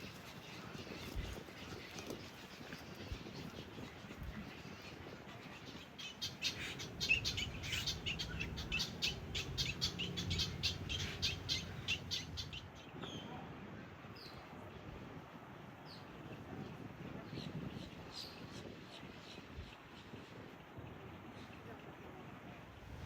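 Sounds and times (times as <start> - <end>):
birds chirping: 0.0 - 13.4.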